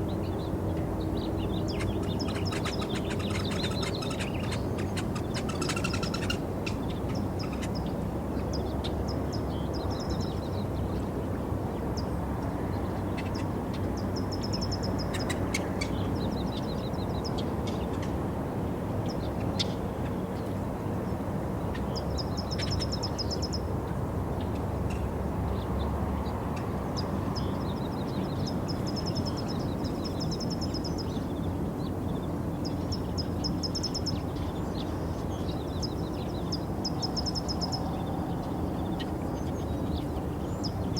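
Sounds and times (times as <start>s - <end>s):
small birds trilling: 0.0s - 10.9s, 12.0s - 18.2s.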